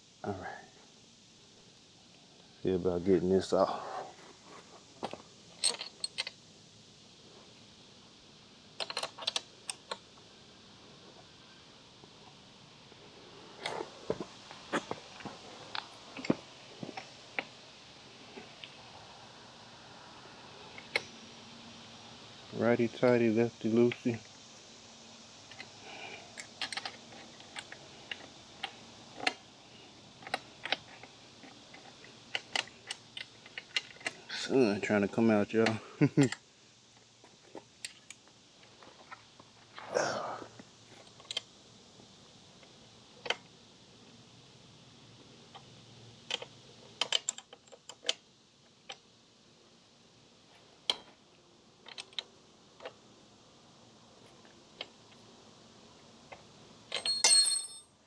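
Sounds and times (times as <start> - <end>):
wrench clicking on bolt: 46.3 - 48.2.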